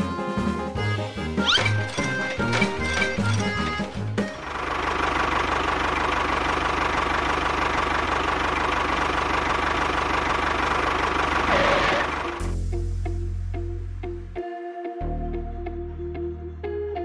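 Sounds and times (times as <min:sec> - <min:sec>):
engine knocking chug: 0:01.6 - 0:12.4.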